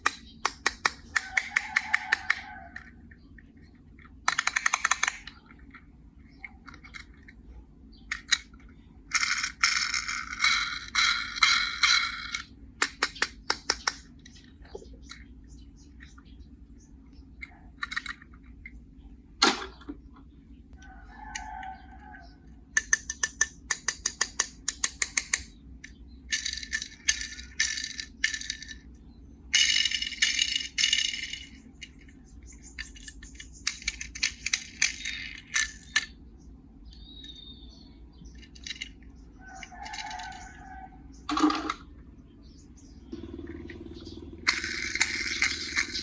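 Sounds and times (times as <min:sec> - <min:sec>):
toy cars clicking and rattling: 0:00.0 - 0:03.0, 0:03.9 - 0:07.4, 0:08.1 - 0:15.3, 0:17.4 - 0:18.7, 0:22.7 - 0:36.2, 0:38.3 - 0:41.8, 0:44.4 - 0:46.0.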